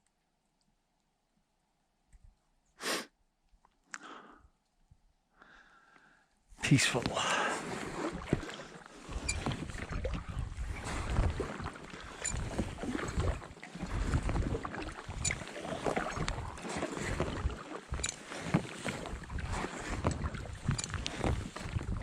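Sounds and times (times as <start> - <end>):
paddle splashing in water: 6.8 - 22.0
wind rumble on microphone: 9.1 - 22.0.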